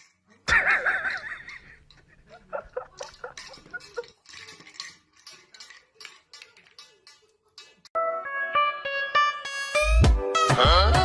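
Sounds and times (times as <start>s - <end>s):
light clicks and clinks: 1.4s - 8.0s.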